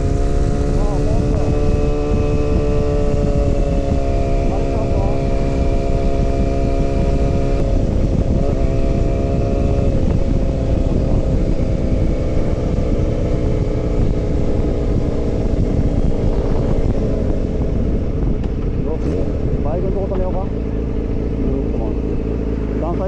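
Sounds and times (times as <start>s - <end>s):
wind noise on microphone: 0.0s - 22.8s
motorcycle engine cruising: 0.0s - 23.0s.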